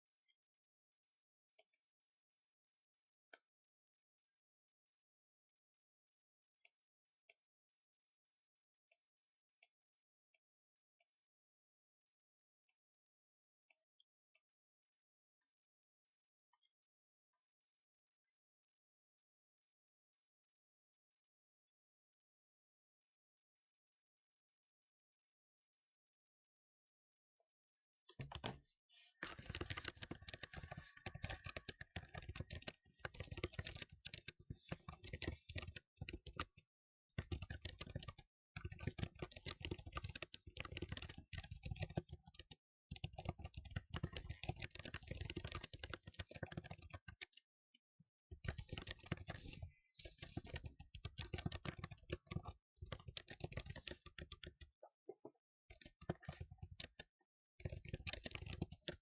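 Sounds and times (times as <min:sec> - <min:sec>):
fast typing on keyboard: 0:29.2 - 0:47.4, 0:48.3 - 0:54.7, 0:55.7 - 0:59.0.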